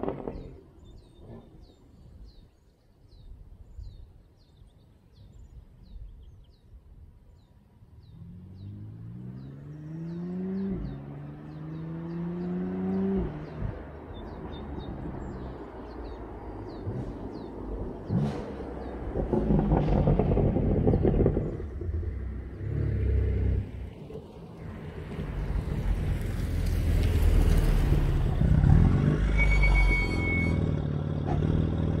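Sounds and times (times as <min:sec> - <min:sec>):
birds chirping: 0:00.0 - 0:26.0
car engine accelerating hard: 0:08.0 - 0:24.0, 0:24.6 - 0:29.5, 0:30.1 - 0:32.0
brief high whistle: 0:29.3 - 0:30.7.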